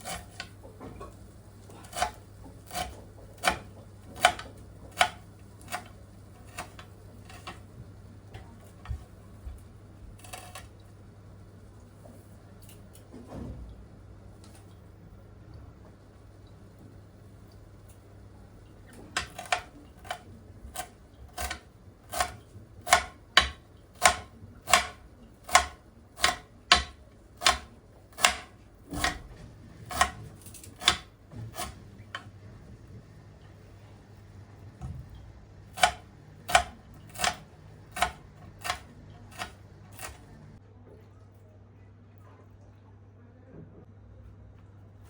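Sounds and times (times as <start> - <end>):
knife chopping on cutting board: 1.8 - 7.6, 10.2 - 10.7, 19.0 - 32.3, 35.7 - 40.3.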